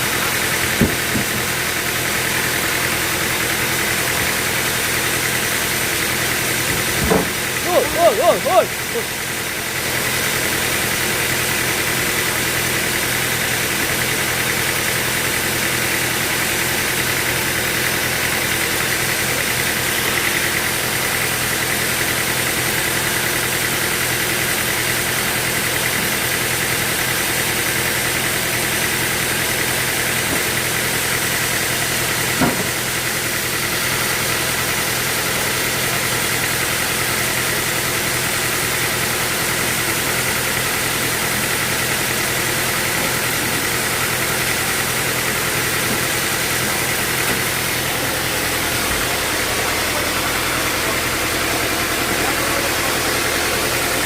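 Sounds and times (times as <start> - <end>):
sawmill machinery running: 0.0 - 54.0
short knock: 0.8 - 1.5, 6.7 - 7.4.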